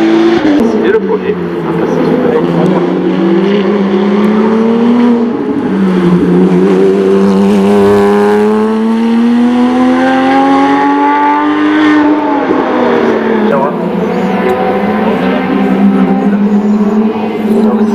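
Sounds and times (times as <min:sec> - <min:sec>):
race car engine accelerating: 0:00.0 - 0:17.9.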